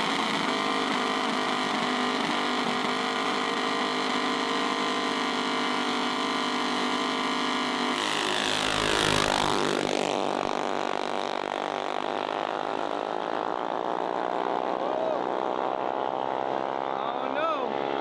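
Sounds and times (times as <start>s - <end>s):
mini bike engines at full throttle: 0.0s - 18.0s.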